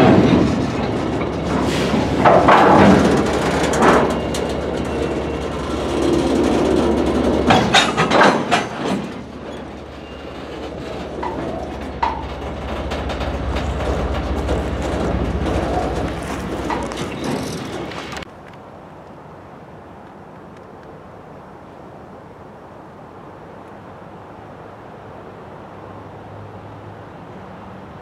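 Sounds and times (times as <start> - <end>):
freight train wheels rumbling on rail: 0.0 - 18.3
train cars knocking and clanking: 0.0 - 18.3.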